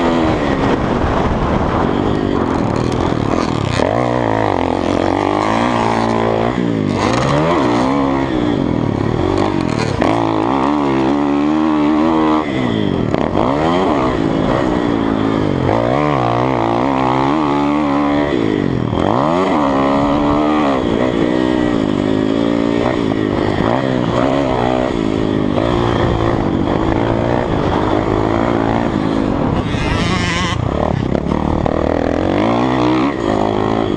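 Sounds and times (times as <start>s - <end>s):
dirt bike engine revving: 0.0s - 33.9s.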